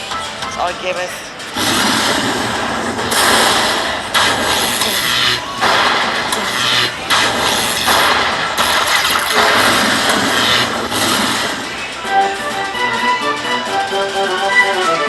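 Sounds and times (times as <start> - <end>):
slot machine tune: 0.0 - 15.0
slot machine reels spinning: 1.3 - 15.0.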